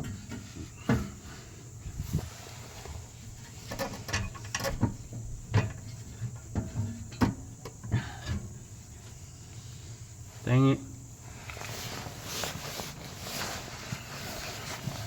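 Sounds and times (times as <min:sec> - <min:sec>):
metal exhaust parts clanking: 0:00.0 - 0:01.4, 0:03.2 - 0:09.2.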